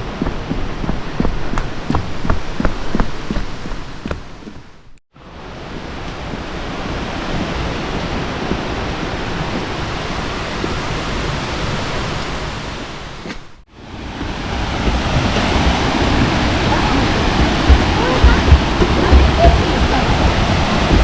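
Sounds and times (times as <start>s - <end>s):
waterfall rushing: 5.2s - 13.2s, 13.8s - 21.0s.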